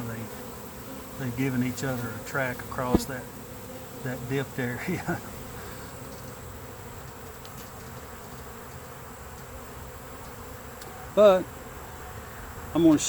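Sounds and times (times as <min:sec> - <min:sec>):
bee swarm buzzing: 0:00.0 - 0:13.0.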